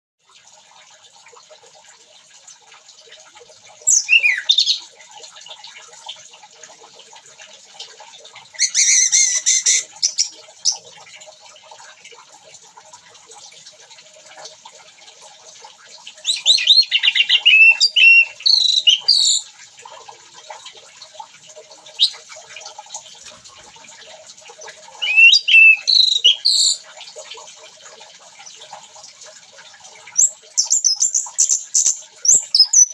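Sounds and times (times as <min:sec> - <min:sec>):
thrush singing: 0:16.3 - 0:19.4, 0:25.0 - 0:26.8.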